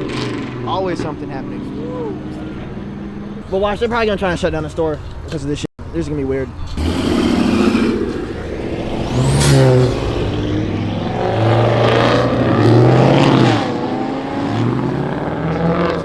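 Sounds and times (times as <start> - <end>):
car engines revving: 0.0 - 3.5, 6.6 - 16.0.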